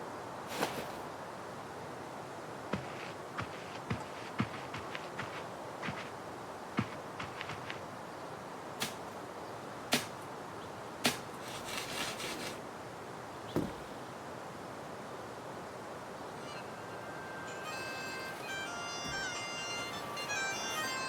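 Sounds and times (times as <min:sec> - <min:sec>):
steady hiss: 0:00.0 - 0:07.1, 0:07.7 - 0:21.0
low thud: 0:13.6 - 0:14.0.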